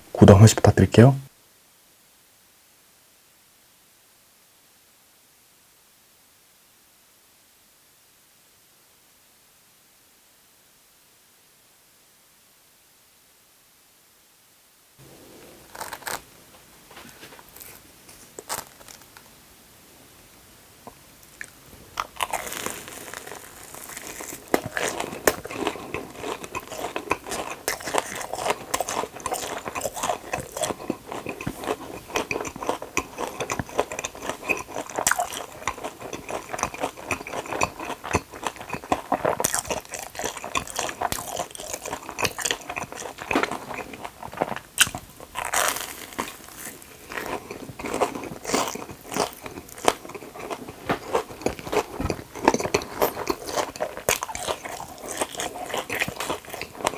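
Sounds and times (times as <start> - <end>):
crunching bites and chewing: 15.6 - 16.3, 17.0 - 19.3, 21.3 - 56.9.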